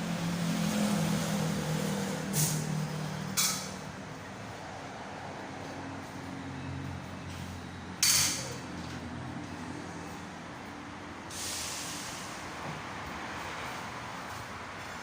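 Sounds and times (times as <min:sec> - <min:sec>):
compressed air hissing: 0:11.3 - 0:12.4.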